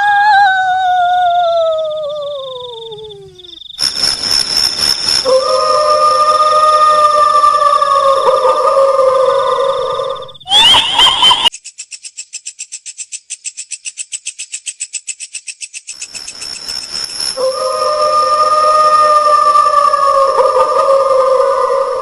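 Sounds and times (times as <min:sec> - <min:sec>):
long high wail: 0:00.0 - 0:02.4, 0:05.2 - 0:11.5, 0:17.4 - 0:22.0
rapid high-pitched chattering: 0:03.8 - 0:06.6, 0:15.9 - 0:18.8
hiss: 0:03.8 - 0:07.1.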